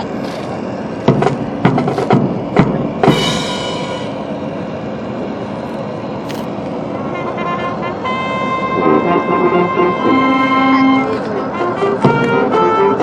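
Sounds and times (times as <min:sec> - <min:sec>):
sharp drum strikes: 0:01.1 - 0:04.1
cymbal crash ringing: 0:03.0 - 0:04.4.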